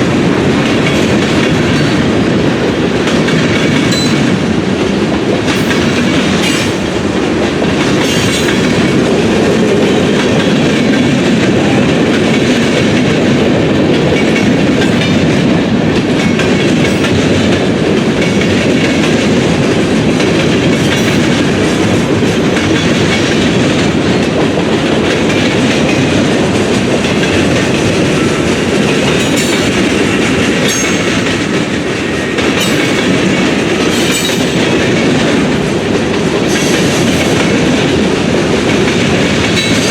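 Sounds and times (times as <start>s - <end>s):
freight train cars rolling: 0.0s - 39.9s
wheels clicking over rail joints: 0.2s - 39.9s.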